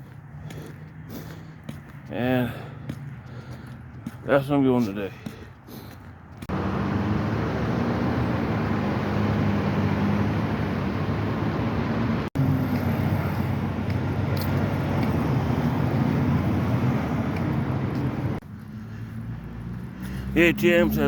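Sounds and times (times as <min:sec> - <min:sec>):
car engine hum and road noise: 0:05.8 - 0:21.0.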